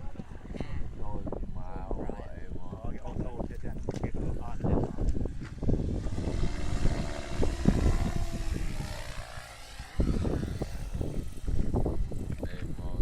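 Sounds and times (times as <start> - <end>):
model airplane motor droning: 4.2 - 13.0
low rumbling: 4.4 - 13.0.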